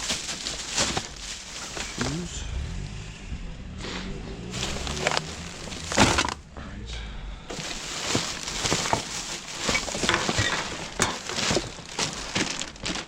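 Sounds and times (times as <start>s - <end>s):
items clinking and knocking: 0.0s - 2.2s, 4.6s - 6.4s, 7.5s - 13.0s
bags rustling and crinkling: 0.0s - 2.4s, 4.4s - 6.4s, 7.5s - 13.0s.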